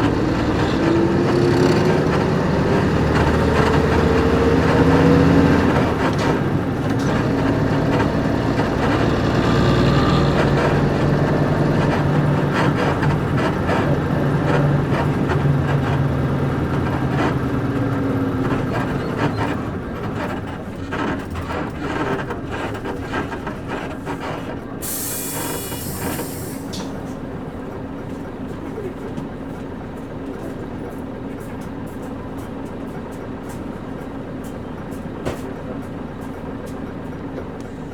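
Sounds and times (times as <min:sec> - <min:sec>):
suspension creaks and rattles: 0:00.0 - 0:24.8
bus diesel engine running: 0:00.0 - 0:37.9.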